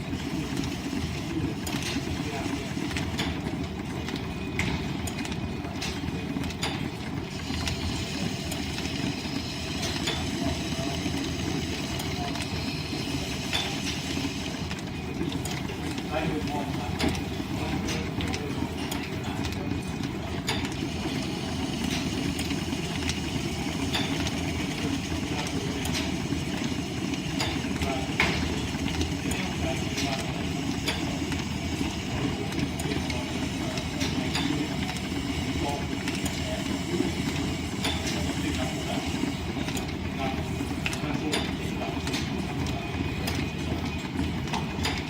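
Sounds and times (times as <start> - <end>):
wood lathe and belts rumbling: 7.1 - 42.4.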